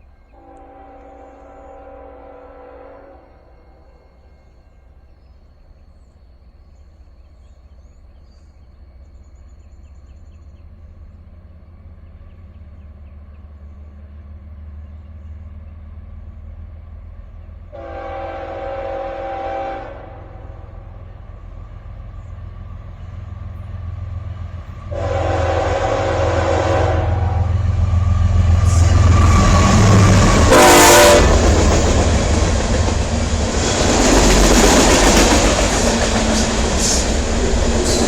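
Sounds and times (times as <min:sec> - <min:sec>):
freight train rumble: 0:00.0 - 0:38.0
locomotive air horn: 0:00.4 - 0:04.0, 0:17.7 - 0:21.0, 0:24.9 - 0:27.7, 0:28.5 - 0:32.2.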